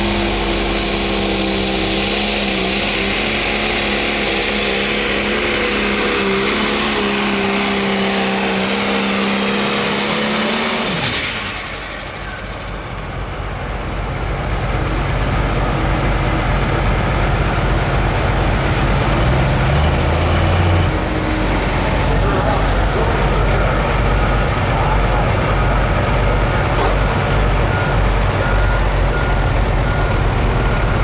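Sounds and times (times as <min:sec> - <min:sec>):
diesel engine running flat out: 0:00.0 - 0:31.0.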